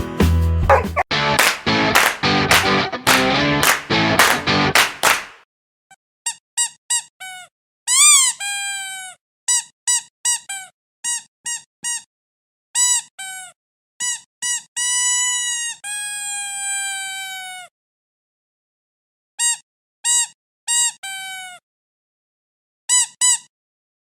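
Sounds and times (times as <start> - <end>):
squeaky dog toy squeaking: 0.7 - 1.0, 6.3 - 12.0, 12.8 - 17.7, 19.4 - 21.6, 22.9 - 23.5.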